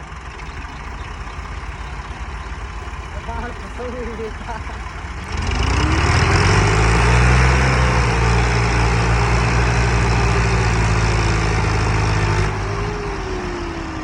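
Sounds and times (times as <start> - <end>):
tractor diesel engine running hard: 0.0 - 14.0.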